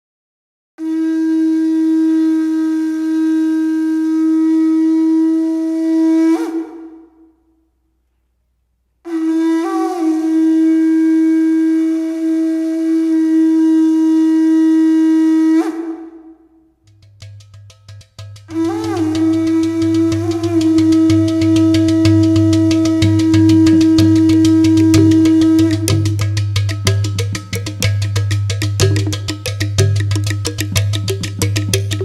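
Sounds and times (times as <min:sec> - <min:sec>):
horn blowing long notes: 0:00.8 - 0:07.1, 0:09.1 - 0:16.4, 0:18.5 - 0:26.0.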